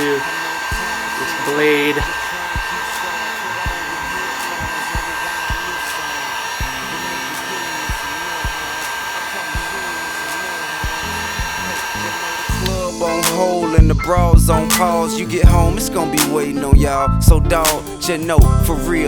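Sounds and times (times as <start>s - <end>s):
heat gun blowing air: 0.0s - 13.7s
high whine: 0.0s - 19.0s.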